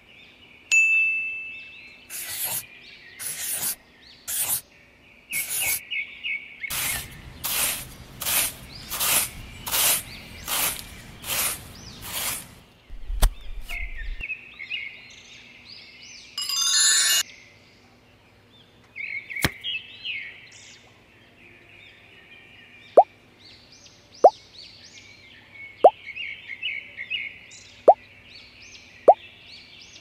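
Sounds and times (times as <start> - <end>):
birds chirping: 1.5 - 14.3.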